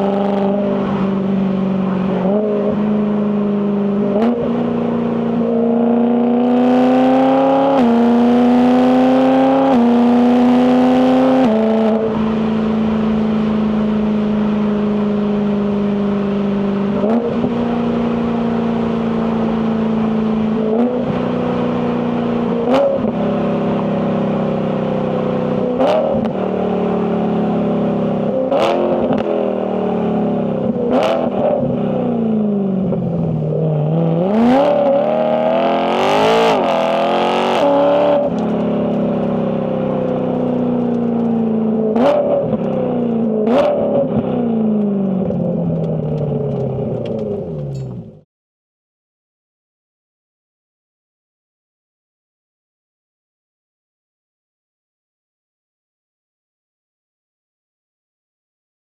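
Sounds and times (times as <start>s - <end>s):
car exhaust accelerating: 0.0s - 48.2s
exhaust cracks: 38.2s - 48.2s.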